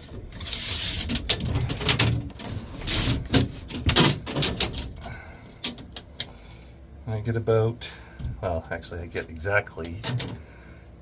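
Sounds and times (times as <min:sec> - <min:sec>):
scraping and rubbing: 0:00.0 - 0:05.0.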